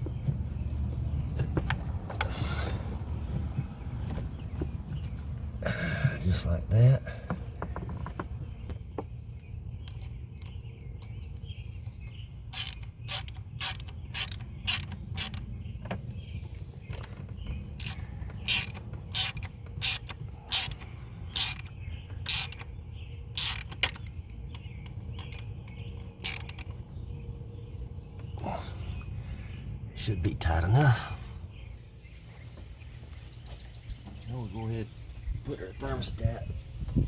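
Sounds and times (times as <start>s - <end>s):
ratchet wrench clicking: 12.5s - 15.4s, 17.8s - 22.7s, 23.3s - 24.1s, 26.2s - 26.7s.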